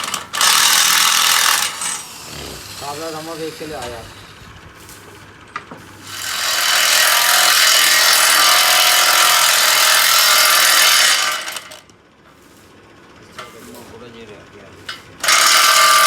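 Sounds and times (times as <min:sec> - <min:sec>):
power tool whirring on metal: 0:00.0 - 0:04.5, 0:06.0 - 0:11.8, 0:15.2 - 0:16.0.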